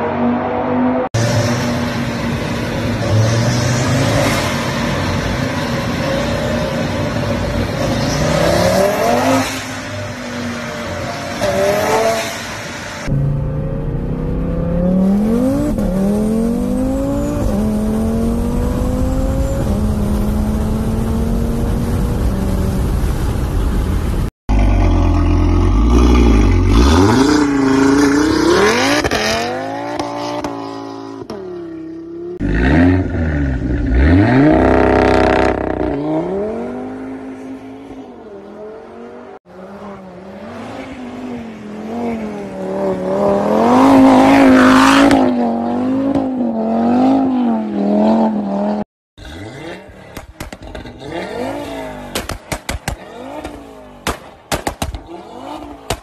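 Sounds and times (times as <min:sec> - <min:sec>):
car engine revving: 0:24.5 - 0:31.4, 0:41.8 - 0:56.0.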